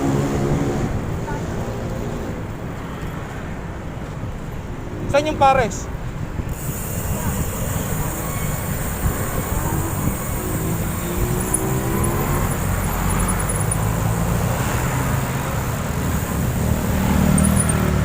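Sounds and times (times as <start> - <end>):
cars passing: 0.0 - 18.0
wind buffeting microphone: 6.0 - 13.2.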